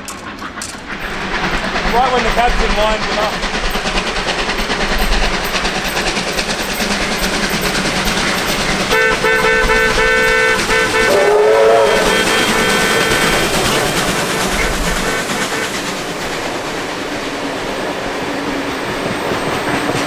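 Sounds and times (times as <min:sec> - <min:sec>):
train running noise: 0:00.0 - 0:20.0
locomotive horn chord: 0:08.9 - 0:15.9.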